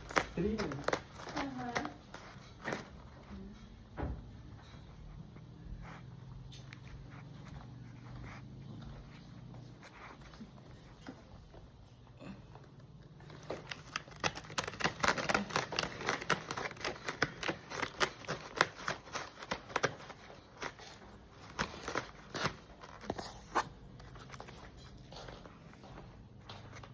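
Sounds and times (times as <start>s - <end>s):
cat scratching claws on scratcher: 13.2s - 24.3s.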